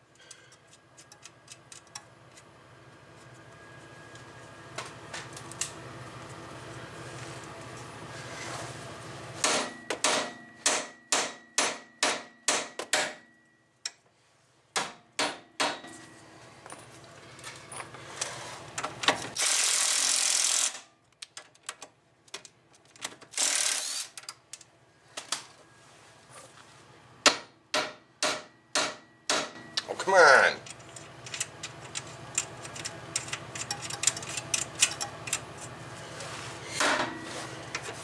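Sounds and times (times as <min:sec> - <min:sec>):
sledgehammer striking steel: 0:09.4 - 0:13.3, 0:14.8 - 0:16.0
impact wrench running: 0:19.4 - 0:20.8, 0:23.3 - 0:24.2.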